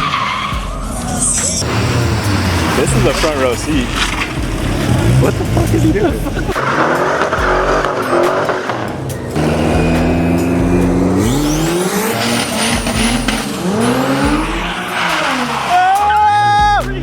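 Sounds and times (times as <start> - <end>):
tires squealing: 0.0 - 17.0
car engine revving hard: 0.6 - 15.8.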